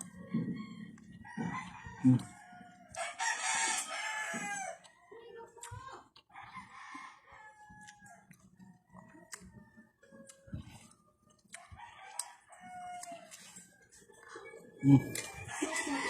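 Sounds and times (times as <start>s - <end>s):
rooster crowing: 0.0s - 4.9s, 6.3s - 8.3s, 11.6s - 13.5s, 14.8s - 16.0s.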